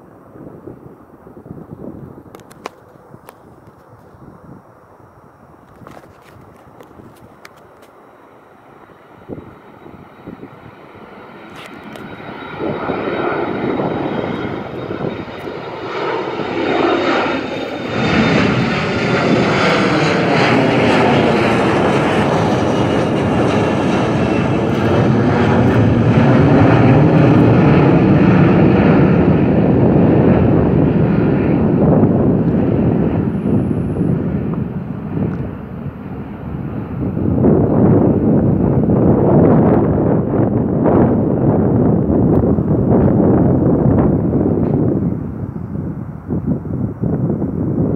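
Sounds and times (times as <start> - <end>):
faint high whine: 0.0 - 29.8
jet airliner engines roaring: 0.0 - 47.9.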